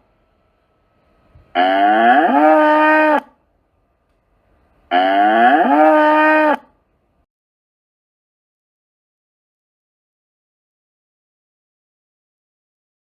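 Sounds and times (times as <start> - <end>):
ox mooing: 1.6 - 3.3, 4.9 - 6.6.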